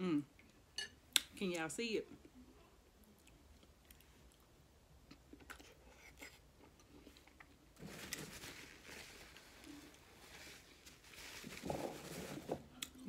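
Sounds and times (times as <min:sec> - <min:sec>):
soft chewing: 0:02.1 - 0:07.8.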